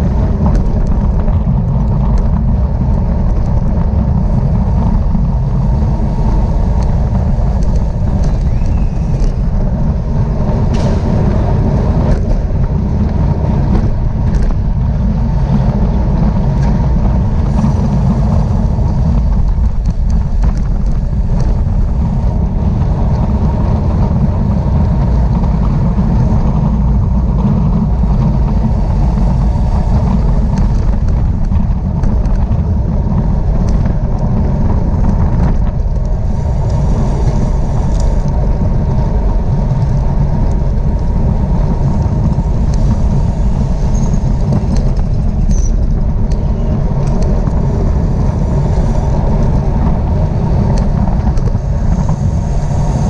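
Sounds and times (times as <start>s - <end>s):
road noise: 0.0s - 53.0s
wind buffeting microphone: 0.0s - 53.0s.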